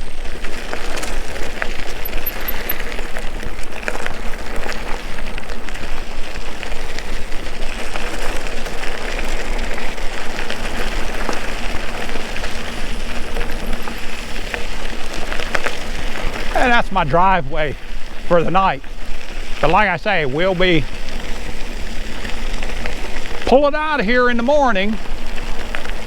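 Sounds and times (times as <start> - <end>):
small clicks and rattles: 0.7 - 5.5.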